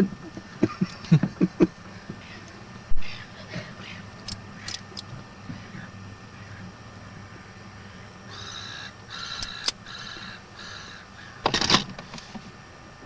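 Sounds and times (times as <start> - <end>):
crow cawing: 8.3 - 11.5.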